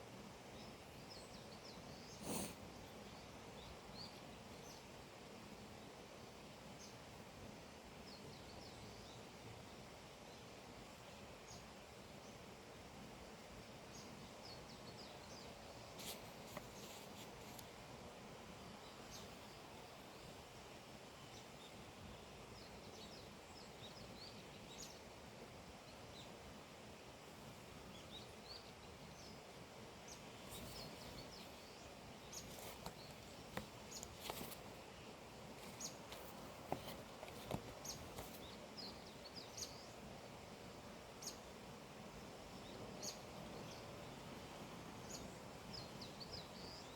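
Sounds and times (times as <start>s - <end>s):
outdoor hiss: 0.0s - 46.9s
small birds chirping: 0.4s - 5.0s, 13.7s - 17.9s, 18.7s - 25.2s, 27.2s - 41.6s, 42.2s - 46.9s.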